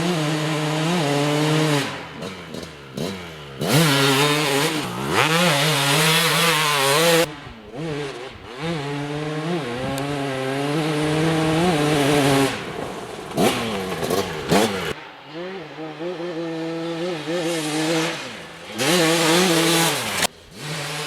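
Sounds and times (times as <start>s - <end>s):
two-stroke engine revving high: 0.0s - 21.0s.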